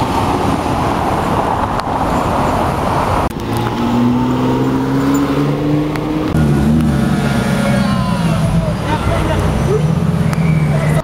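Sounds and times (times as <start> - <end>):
engine and exhaust rushing: 0.0 - 11.0
engine accelerating: 3.3 - 11.0.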